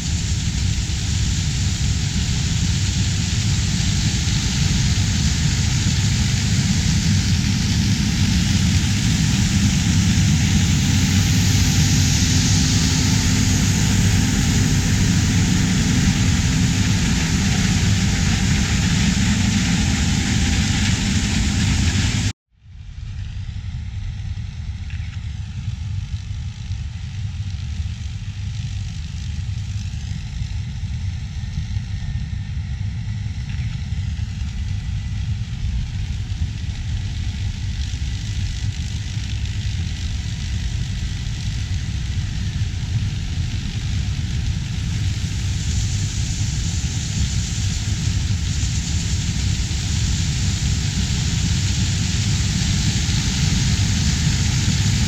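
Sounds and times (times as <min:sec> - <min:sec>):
machinery hiss: 0:00.0 - 0:22.3, 0:33.9 - 0:55.0
harvest machinery engine rumble: 0:01.8 - 0:22.3.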